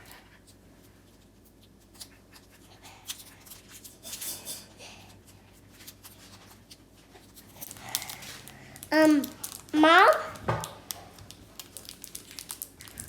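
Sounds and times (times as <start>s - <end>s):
plastic wrappers rustling: 5.6s - 13.0s.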